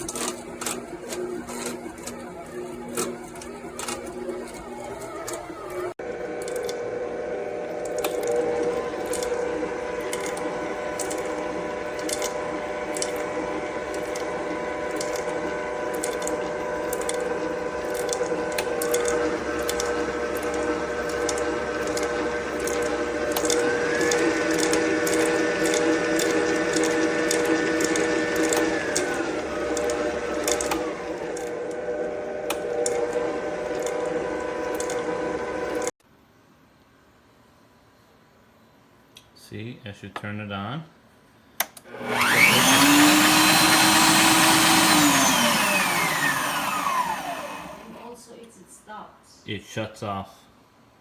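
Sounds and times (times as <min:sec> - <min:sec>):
stand mixer motor whine: 0:00.0 - 0:36.0, 0:41.9 - 0:48.0
beater clicking in bowl: 0:07.8 - 0:31.6, 0:42.1 - 0:48.0.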